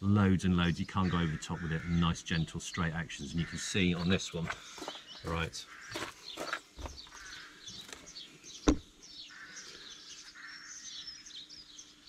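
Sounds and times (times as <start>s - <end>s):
small birds chirping: 0.0s - 12.0s
sharp knock: 8.7s - 8.9s.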